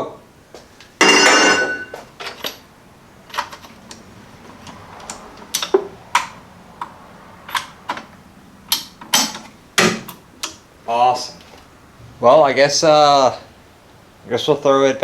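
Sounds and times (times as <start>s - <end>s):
socket ratchet clicking: 3.4s - 8.1s.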